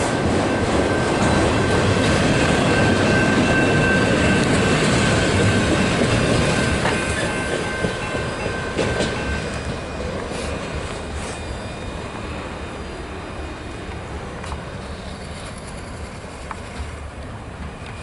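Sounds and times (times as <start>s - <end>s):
wheels clickety-clack: 0.0s - 11.3s, 14.4s - 18.0s
train wheels rumbling on rail: 0.0s - 18.0s
high-pitched wheel squeal: 9.5s - 13.1s, 14.8s - 16.9s.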